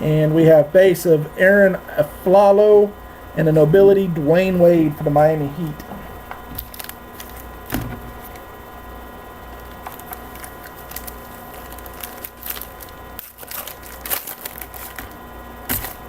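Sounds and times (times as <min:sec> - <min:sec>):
steady background hum: 0:00.0 - 0:16.0
trading cards being flipped through: 0:09.8 - 0:16.0.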